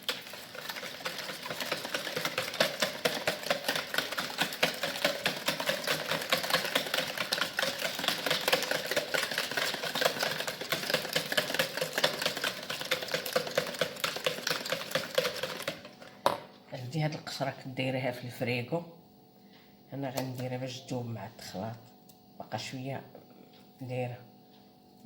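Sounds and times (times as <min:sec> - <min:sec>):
beater clicking against bowl: 0:00.0 - 0:16.4.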